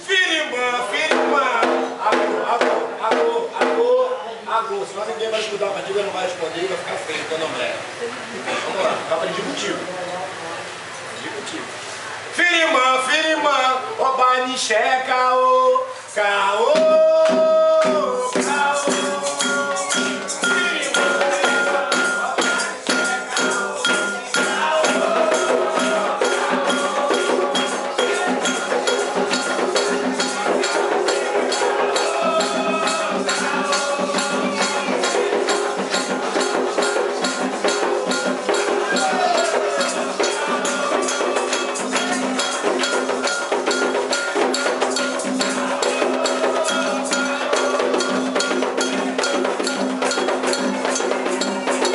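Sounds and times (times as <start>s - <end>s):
voices singing a chant: 12.9s - 51.9s
hand percussion: 16.6s - 51.9s
rattling shakers: 18.0s - 51.9s
ringing bell: 18.3s - 51.9s.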